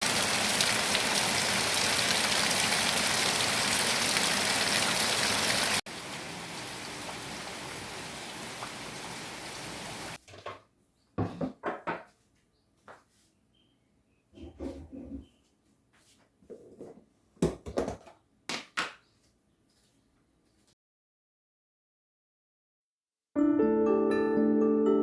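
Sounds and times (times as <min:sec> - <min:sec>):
steady rain falling: 0:00.0 - 0:10.2.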